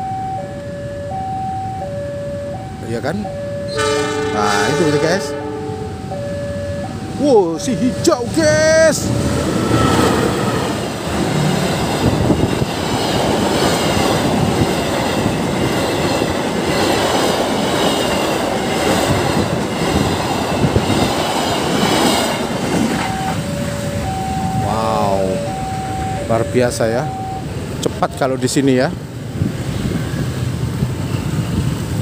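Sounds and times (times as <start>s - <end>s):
diesel locomotive engine: 0.0s - 32.0s
train wheels clattering over rails: 9.2s - 23.6s.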